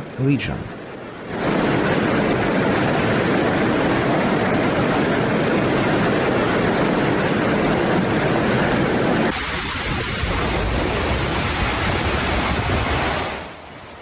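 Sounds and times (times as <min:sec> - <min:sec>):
rushing floodwater: 0:09.3 - 0:14.0.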